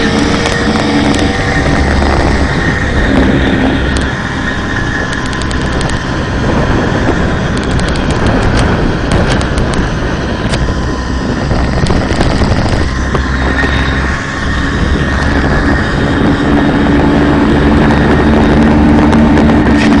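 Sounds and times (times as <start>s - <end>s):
moped two-stroke engine running: 0.0s - 20.0s
sharp ticks: 5.0s - 6.1s, 7.4s - 10.7s.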